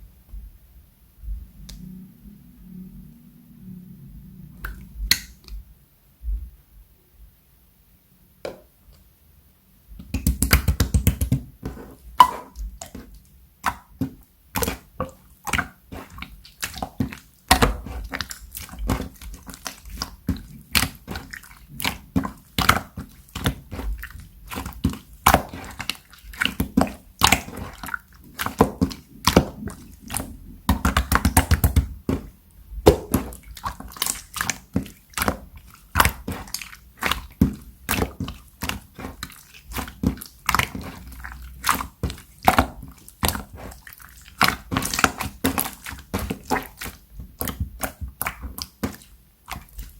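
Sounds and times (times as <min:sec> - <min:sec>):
slime squeezed with sticky pops: 0:10.0 - 0:49.9.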